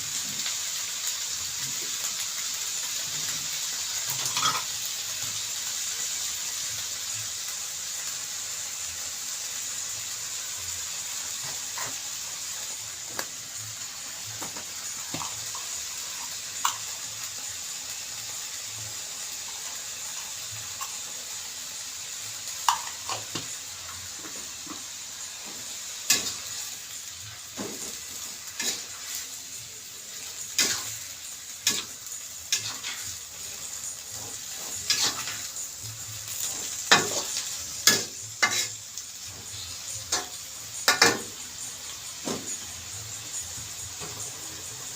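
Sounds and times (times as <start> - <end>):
food sizzling in a pan: 0.0 - 44.9
spatula scraping a pan: 27.5 - 29.4, 30.4 - 35.6, 36.3 - 41.4.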